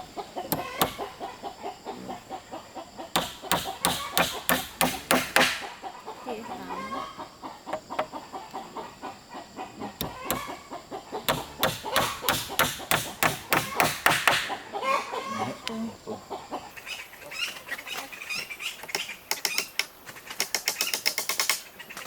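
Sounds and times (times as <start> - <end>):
chickens clucking: 0.0 - 21.0
rapid sharp strikes: 3.2 - 5.8, 11.3 - 14.6.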